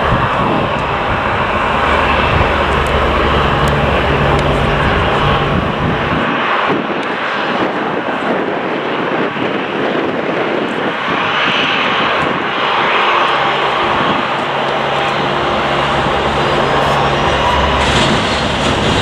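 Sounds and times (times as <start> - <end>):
low hum: 0.0 - 6.4, 12.3 - 19.0
jet engines rushing: 0.0 - 19.0.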